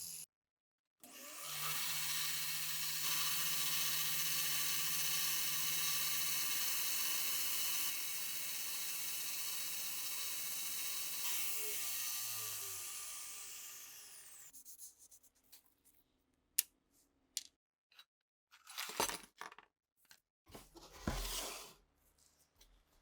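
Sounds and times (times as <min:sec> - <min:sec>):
small power tool whirring: 0:01.0 - 0:14.5.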